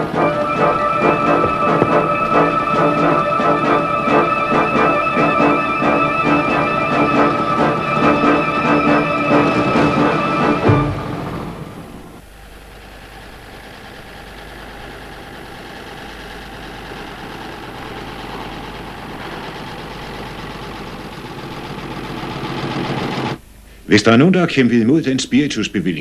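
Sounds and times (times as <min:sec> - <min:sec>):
background music: 0:00.0 - 0:12.2
old car engine running: 0:09.4 - 0:23.4.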